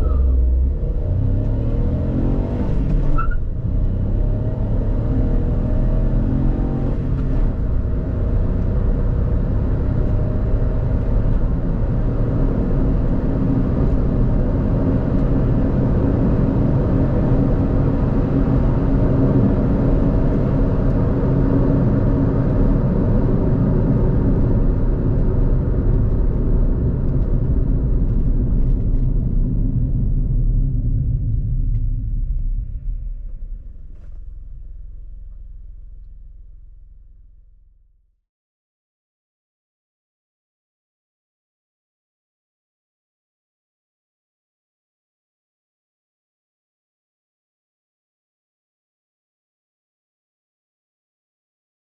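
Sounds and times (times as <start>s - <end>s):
car engine and road noise: 0.0s - 38.0s.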